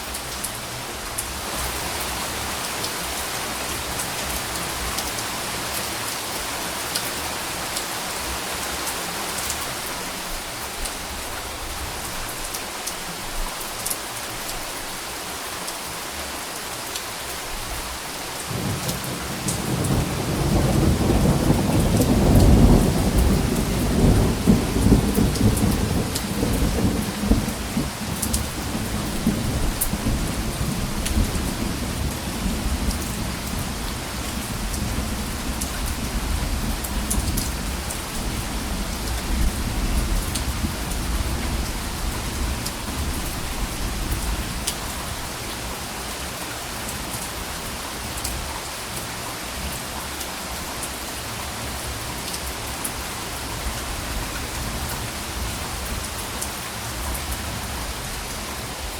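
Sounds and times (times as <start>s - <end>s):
steady rain falling: 0.0s - 58.9s
low thunder rumble: 18.5s - 44.5s.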